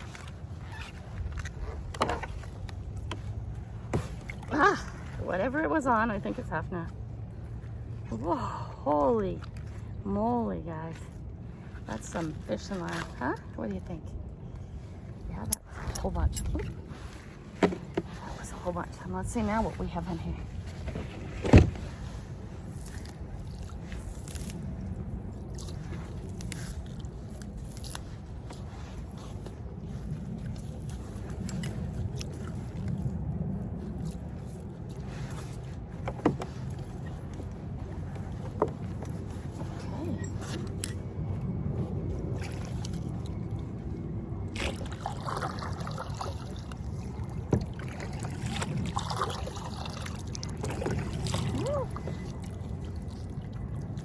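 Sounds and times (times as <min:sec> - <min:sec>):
fishing line scraping and crinkling: 0:00.0 - 0:08.0, 0:14.6 - 0:54.0
low rumble: 0:00.0 - 0:54.0
water lapping around kayak: 0:00.0 - 0:54.0
kayak handling knocks: 0:17.5 - 0:18.1, 0:36.0 - 0:36.6.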